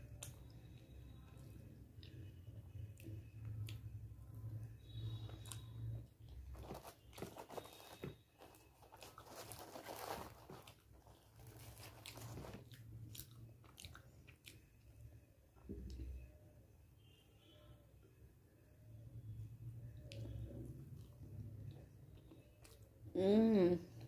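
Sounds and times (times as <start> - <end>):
faint low hum: 0.0 - 24.0
chewing mouth sounds: 12.0 - 14.8.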